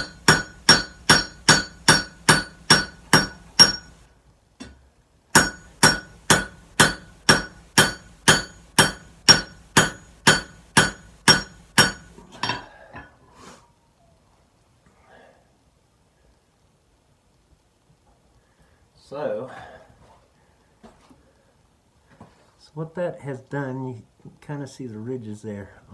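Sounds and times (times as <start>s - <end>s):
hammer ringing on anvil: 0.0s - 4.0s, 5.4s - 12.6s.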